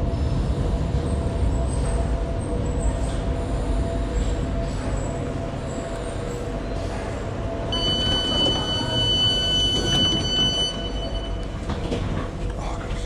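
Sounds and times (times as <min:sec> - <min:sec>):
train rumbling from inside: 0:00.0 - 0:13.0
steady high-pitched tone: 0:07.8 - 0:11.5.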